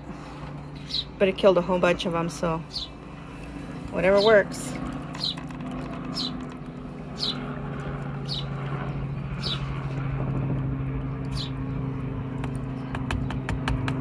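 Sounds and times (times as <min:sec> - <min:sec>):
steady low hum: 0:00.0 - 0:14.0
bird chirping: 0:02.7 - 0:03.0, 0:05.1 - 0:05.5, 0:06.1 - 0:06.5, 0:07.2 - 0:07.5, 0:08.2 - 0:08.6, 0:11.3 - 0:11.8.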